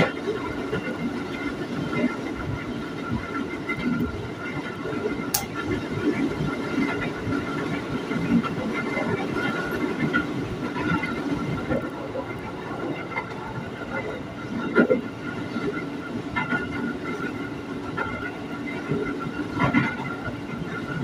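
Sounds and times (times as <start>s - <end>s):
train wheels rumbling on rail: 0.0s - 21.0s
sharp click: 5.3s - 5.6s.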